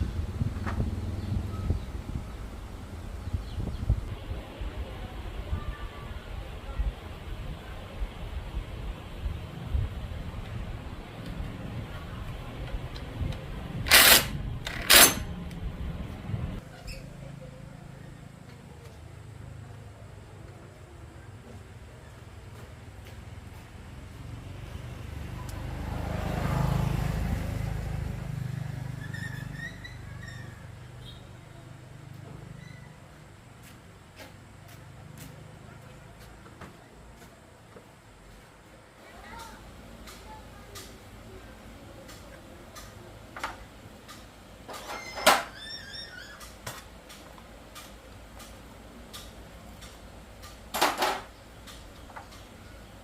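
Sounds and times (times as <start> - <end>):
vehicle engine passing by: 0.0 - 4.1, 23.2 - 33.1
low engine hum: 0.0 - 5.3, 7.4 - 18.8
metal parts and tools clicking: 13.9 - 15.3.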